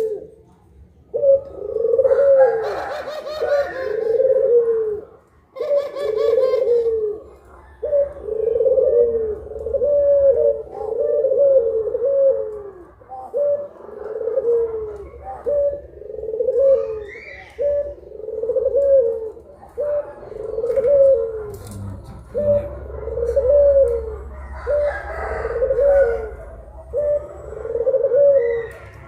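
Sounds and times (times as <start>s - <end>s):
turtle doves cooing: 0.0s - 29.0s
faint low hum: 17.6s - 29.0s.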